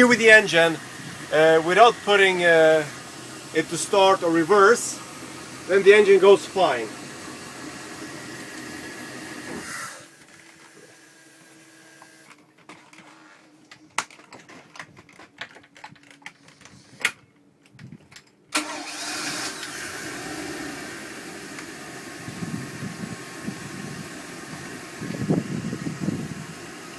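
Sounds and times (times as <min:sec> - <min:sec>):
boat engine running: 0:00.0 - 0:10.1.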